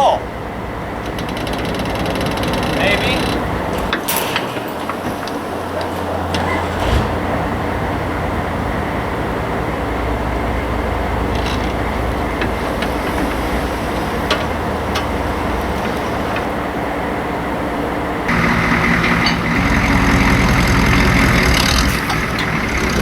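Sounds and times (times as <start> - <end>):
tyres rumbling over rough ground: 0.0 - 23.0
clicks and rattles: 1.0 - 7.3, 18.3 - 23.0
low hum: 17.8 - 23.0.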